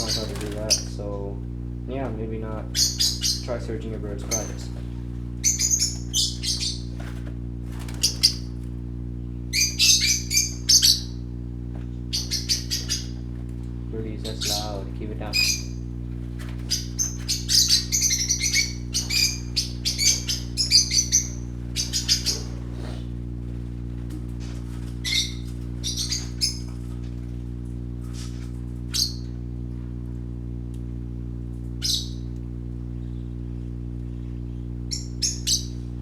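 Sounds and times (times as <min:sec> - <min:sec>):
budgerigars chirping: 0:00.0 - 0:01.0, 0:02.4 - 0:04.8, 0:05.4 - 0:07.0, 0:07.8 - 0:08.5, 0:09.5 - 0:11.2, 0:12.1 - 0:13.2, 0:14.0 - 0:15.9, 0:16.6 - 0:23.1, 0:24.4 - 0:26.7, 0:28.9 - 0:29.3, 0:31.8 - 0:32.3, 0:34.1 - 0:35.8
steady low hum: 0:00.0 - 0:36.0.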